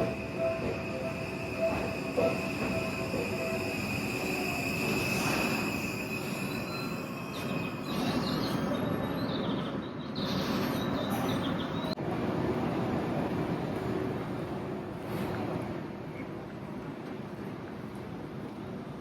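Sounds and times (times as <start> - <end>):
train wheels rumbling on track: 0.0 - 9.1
wheel squeal: 0.1 - 9.3.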